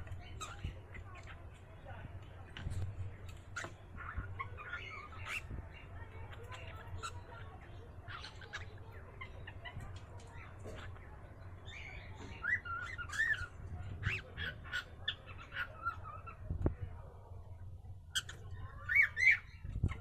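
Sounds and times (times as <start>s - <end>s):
cockatiel squawking: 11.7s - 16.4s, 18.1s - 20.0s.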